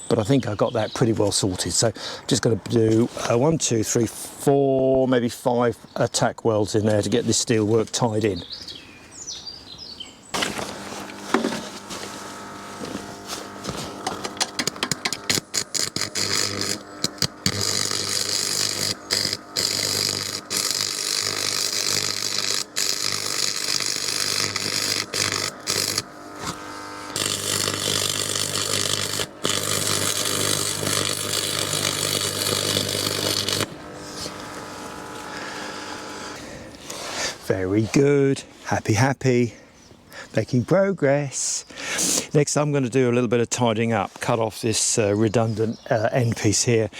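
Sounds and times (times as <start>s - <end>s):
electric arc welder crackling: 10.4s - 36.4s
steady hum: 10.4s - 36.8s.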